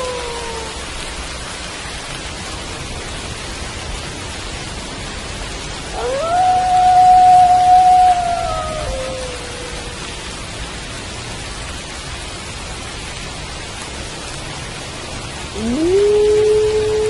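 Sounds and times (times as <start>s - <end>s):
wolf howls: 0.0s - 1.1s, 5.9s - 10.4s, 15.5s - 17.0s
steady rain falling: 0.0s - 17.0s.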